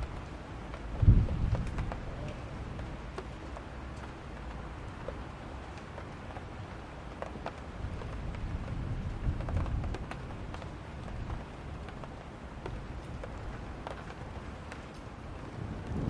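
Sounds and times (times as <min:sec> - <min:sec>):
raindrops ticking: 0:00.0 - 0:16.0
steady rain: 0:00.0 - 0:16.0
distant thunder rumble: 0:15.4 - 0:16.0.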